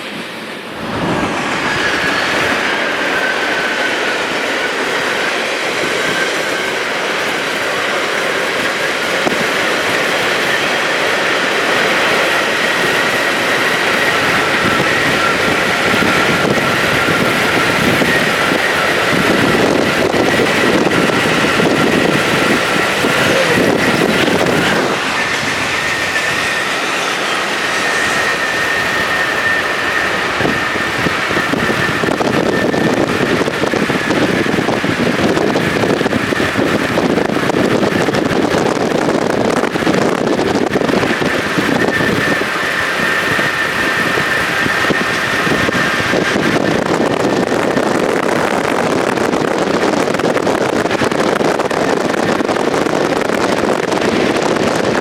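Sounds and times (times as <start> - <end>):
thin high whine: 0.5 - 6.5, 20.5 - 30.9.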